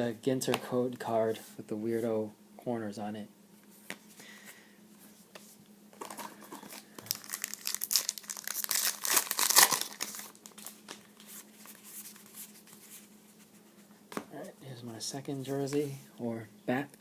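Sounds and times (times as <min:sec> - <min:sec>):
wrapper crinkling and tearing: 0:06.0 - 0:11.4.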